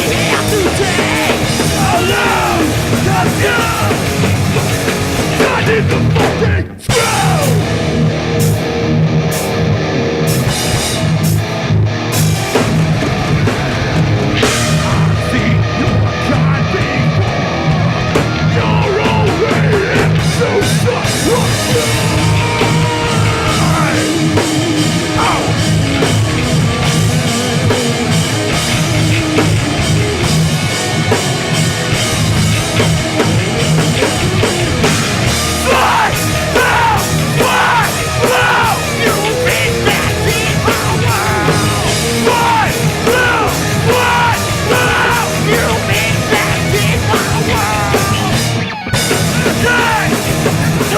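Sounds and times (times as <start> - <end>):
shouted vocals: 0.0 - 4.6, 5.2 - 7.8, 14.4 - 26.2, 35.2 - 50.9
punk band playing live: 0.0 - 50.9.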